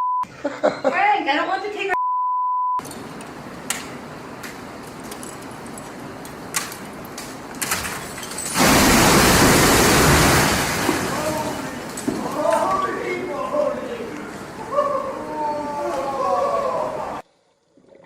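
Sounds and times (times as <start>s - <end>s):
high censor beep: 0.0s - 0.2s, 2.0s - 2.8s
sharp clicks and knocks: 2.8s - 8.5s
loud rushing noise: 8.6s - 11.8s.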